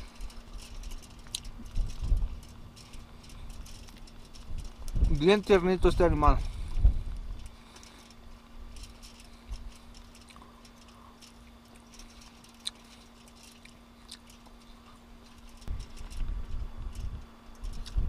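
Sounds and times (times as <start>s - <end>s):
faint steady hum: 0.0s - 18.0s
person chewing: 11.4s - 15.0s.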